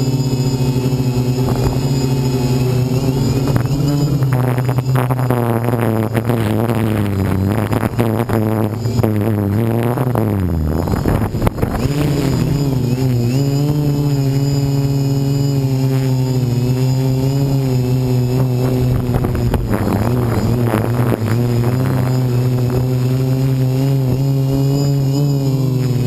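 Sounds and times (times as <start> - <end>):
quadcopter propellers humming: 0.0 - 26.0
wind rushing over microphone: 0.0 - 26.0.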